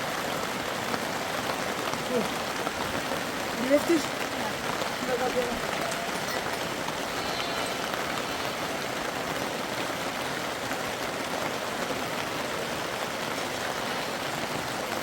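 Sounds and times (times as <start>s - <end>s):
hiss of water noise: 5.7s - 15.0s.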